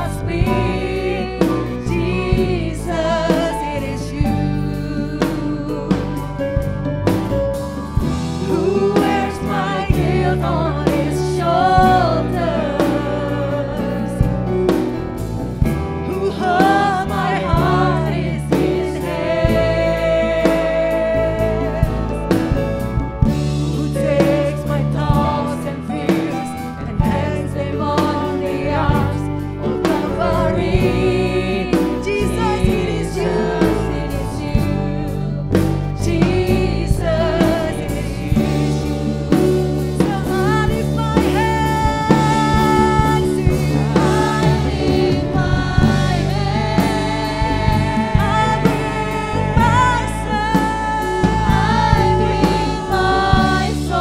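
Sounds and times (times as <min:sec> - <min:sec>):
worship band playing: 0:00.0 - 0:54.0
person singing: 0:23.8 - 0:54.0.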